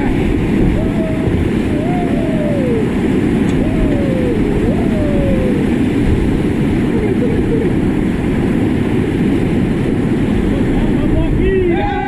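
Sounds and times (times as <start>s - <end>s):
faint voices: 0.0s - 6.0s
river whitewater roaring: 0.0s - 12.0s.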